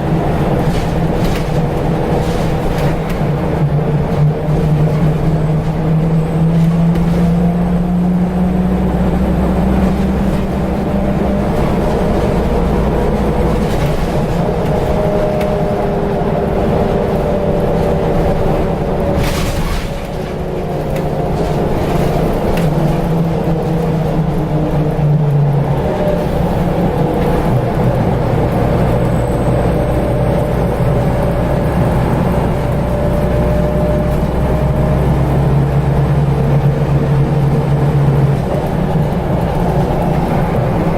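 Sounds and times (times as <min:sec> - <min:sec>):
bus engine drone: 0:00.0 - 0:40.9.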